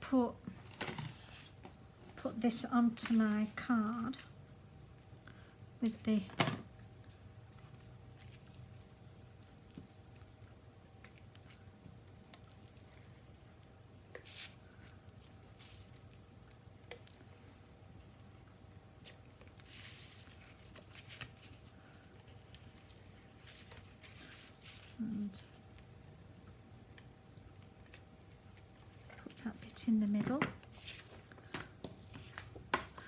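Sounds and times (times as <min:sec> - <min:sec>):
low electrical hum: 0:00.0 - 0:33.0
card and paper rustling: 0:03.0 - 0:04.3, 0:14.2 - 0:16.2, 0:19.0 - 0:25.6, 0:27.9 - 0:33.0.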